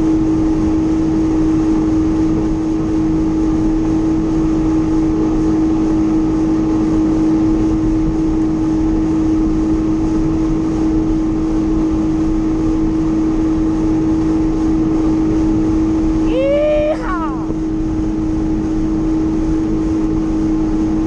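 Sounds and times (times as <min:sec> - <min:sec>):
jet ski engine droning: 0:00.0 - 0:21.0.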